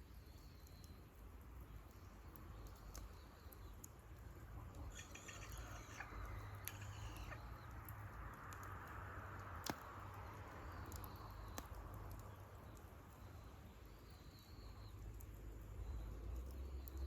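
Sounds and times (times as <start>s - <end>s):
campfire crackling: 0.0s - 17.0s
fire pops: 9.4s - 10.2s, 10.8s - 12.9s.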